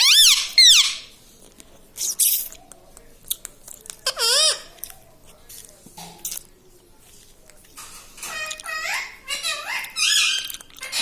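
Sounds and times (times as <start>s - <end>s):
parrot raspy squawk: 0.0s - 1.1s, 8.3s - 11.0s
parrot shrill calls: 0.0s - 1.1s, 8.3s - 11.0s.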